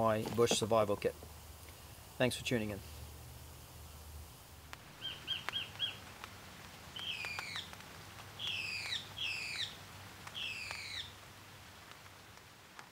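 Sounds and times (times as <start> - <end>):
bird calling: 4.9 - 6.1, 6.9 - 7.8, 8.4 - 11.2.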